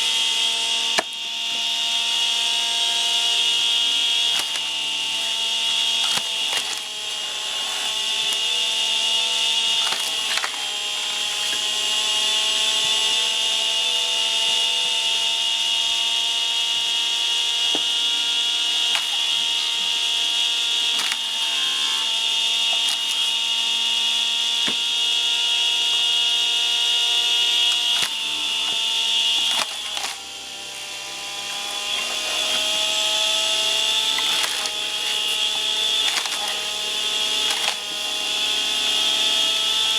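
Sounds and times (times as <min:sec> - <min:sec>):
wood splitting cracks: 0:00.0 - 0:01.4, 0:03.7 - 0:12.9, 0:18.7 - 0:23.4, 0:26.9 - 0:30.4, 0:31.5 - 0:39.9
log splitter motor whining: 0:00.0 - 0:39.9.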